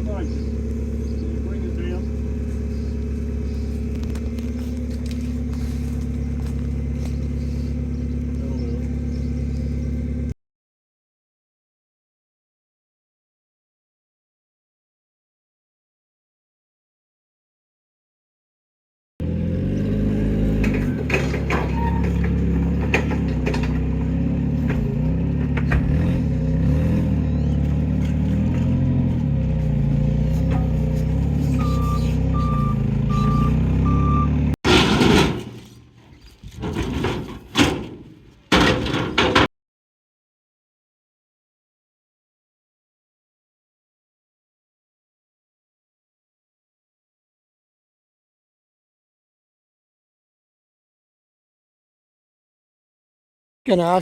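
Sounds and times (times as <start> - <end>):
heavy vehicle engine running: 0.0 - 10.3, 19.2 - 39.5.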